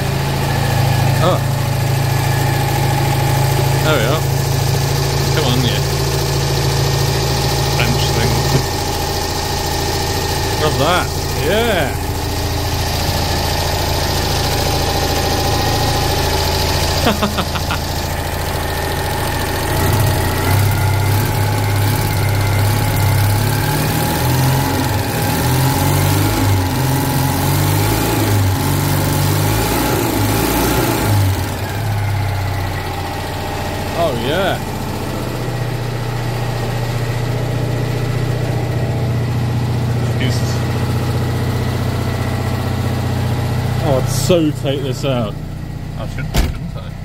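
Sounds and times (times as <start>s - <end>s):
car engine running: 0.0s - 47.0s.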